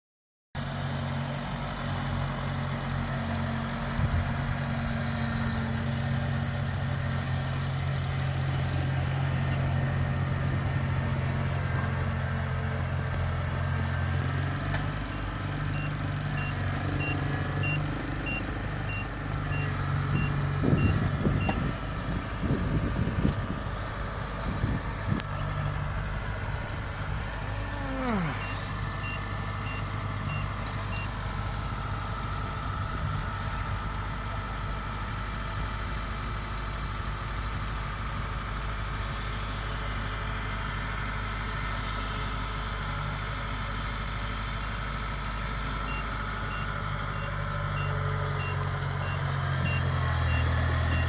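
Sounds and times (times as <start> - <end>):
combine harvester diesel engine: 0.6 - 51.0
high beeping: 14.5 - 21.7, 28.0 - 31.1, 45.9 - 51.0.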